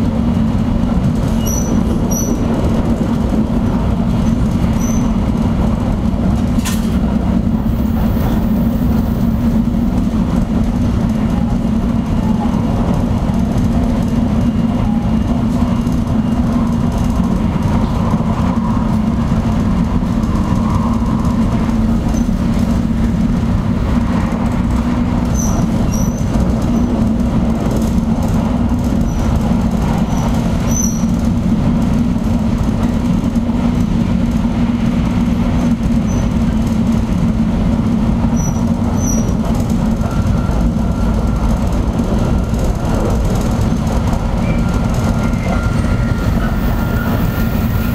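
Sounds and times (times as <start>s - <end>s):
train rumble inside cabin: 0.0s - 47.9s
faint high squeaks: 4.8s - 5.1s.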